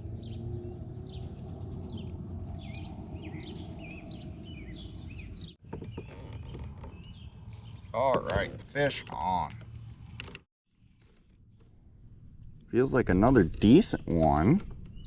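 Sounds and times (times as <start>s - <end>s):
low background rumble: 0.0s - 5.5s
small birds chirping: 0.0s - 10.2s.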